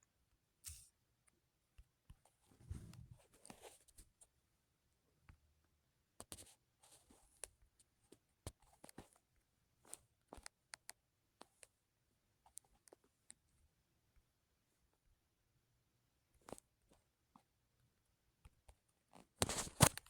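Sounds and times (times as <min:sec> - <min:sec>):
faint clicks and taps: 0:06.2 - 0:11.8, 0:12.4 - 0:13.5, 0:16.3 - 0:20.0.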